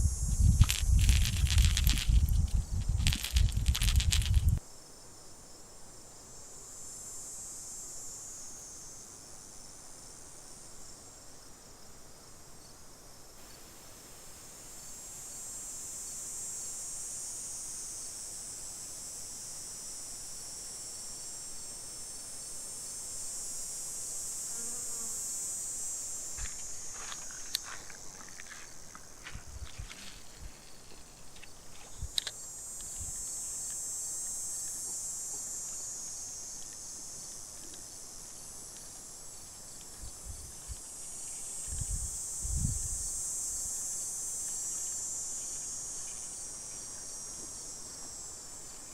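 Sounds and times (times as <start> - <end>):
loud rustle: 0.0 - 4.6
insects buzzing: 0.0 - 48.9.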